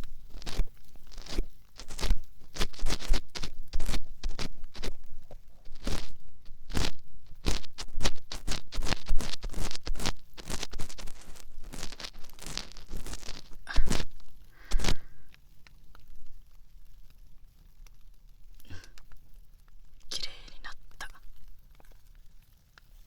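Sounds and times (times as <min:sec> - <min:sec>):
scratching and scraping in ear: 0:00.0 - 0:16.0, 0:20.0 - 0:22.0.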